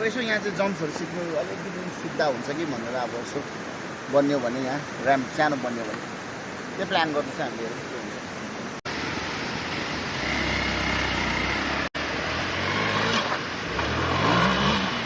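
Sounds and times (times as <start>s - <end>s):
dirt bike engine revving: 9.5s - 15.0s.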